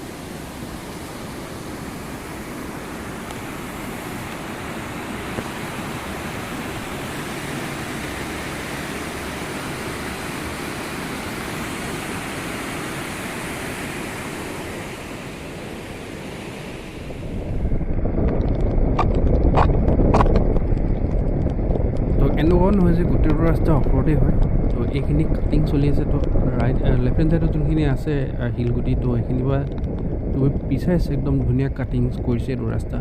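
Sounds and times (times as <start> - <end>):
wind and rain on microphone: 0.0 - 33.0
low rumble: 16.8 - 33.0.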